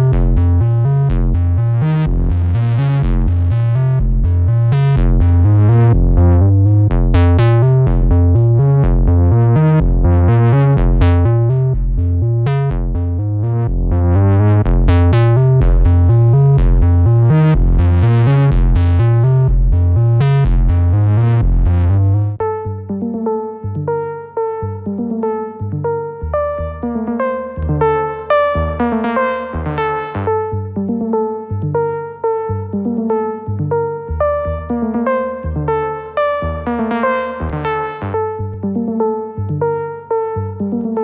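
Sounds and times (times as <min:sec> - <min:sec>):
pulsing synth bass loop: 0:00.0 - 0:41.0
synth lead line: 0:25.7 - 0:39.7.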